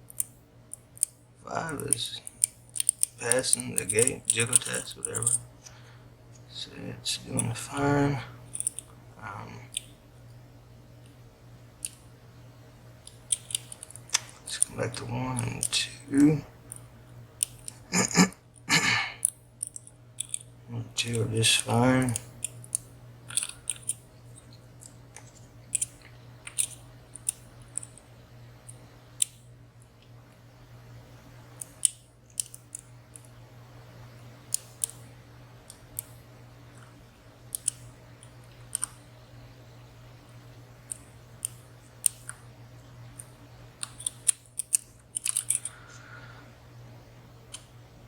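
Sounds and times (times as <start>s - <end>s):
metallic lock picking clicks: 0.1s - 1.2s, 1.8s - 5.4s, 8.5s - 8.9s, 13.1s - 15.7s, 19.2s - 20.5s, 22.1s - 24.0s, 25.7s - 28.0s, 31.6s - 33.3s, 37.5s - 39.0s, 43.2s - 45.7s.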